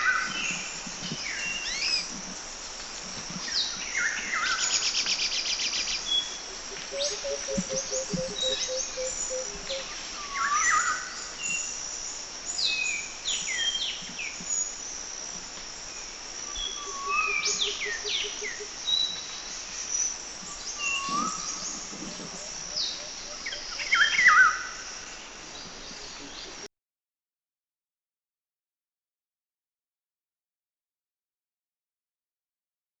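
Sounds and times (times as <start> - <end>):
high insect drone: 0.1 - 26.6
birds whistling: 6.7 - 10.9.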